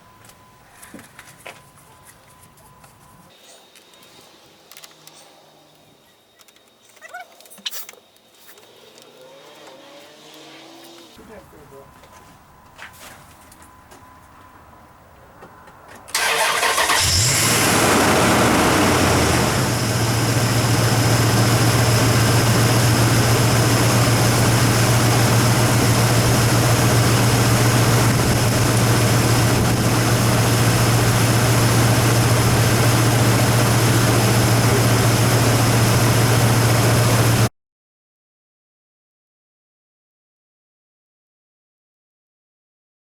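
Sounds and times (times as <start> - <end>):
truck engine starting and idling: 16.1 - 37.5.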